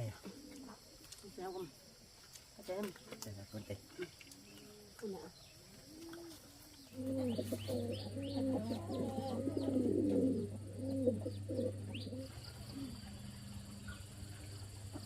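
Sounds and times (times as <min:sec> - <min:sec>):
bird cooing calls: 0:00.0 - 0:02.1, 0:03.8 - 0:15.0
steady low hum: 0:06.8 - 0:15.0.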